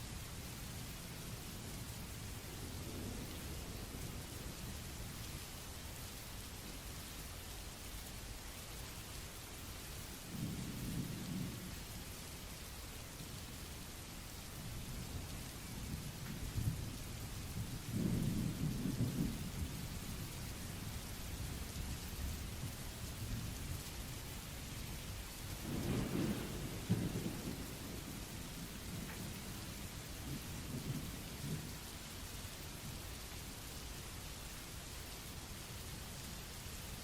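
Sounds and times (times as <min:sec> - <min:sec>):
steady rain hiss: 0:00.0 - 0:37.0
thunder rolling: 0:25.6 - 0:31.7.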